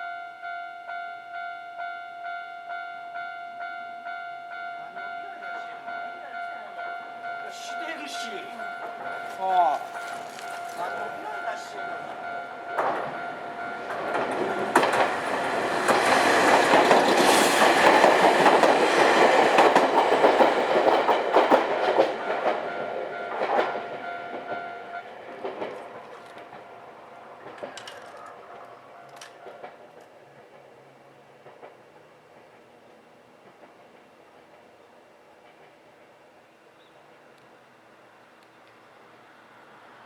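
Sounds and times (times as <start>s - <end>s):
level crossing warning alarm: 0.0s - 29.7s
electric train passing: 0.0s - 40.0s
train wheels clattering over rail joints: 8.8s - 32.7s.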